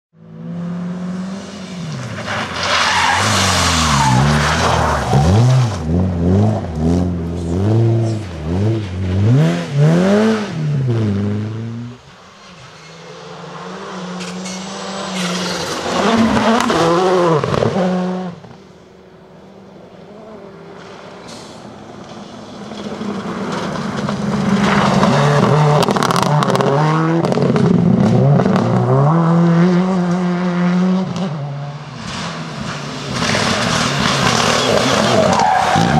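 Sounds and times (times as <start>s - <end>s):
rally car engines revving: 0.2s - 35.9s
tyres sliding on gravel: 1.7s - 5.9s, 20.7s - 26.5s, 32.0s - 35.9s.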